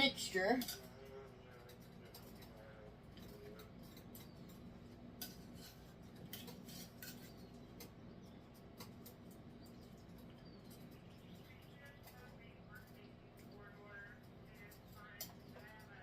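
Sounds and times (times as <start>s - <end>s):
utensil clinking against skillet: 0.4s - 11.6s.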